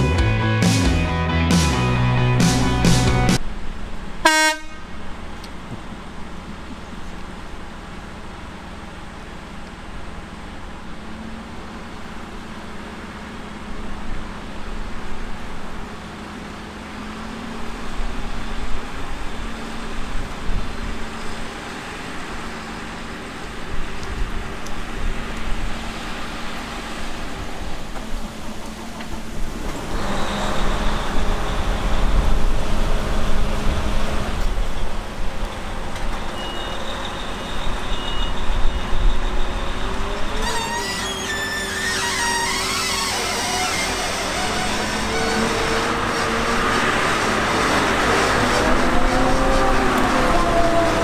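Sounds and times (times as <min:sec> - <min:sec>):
farm machinery diesel drone: 0:00.0 - 0:51.0
horn toot: 0:04.2 - 0:05.1.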